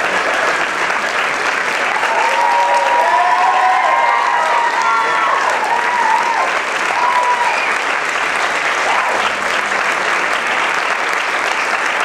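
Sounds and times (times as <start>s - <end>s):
audience applauding: 0.0s - 12.0s
people whooping: 1.9s - 8.0s, 8.6s - 9.6s.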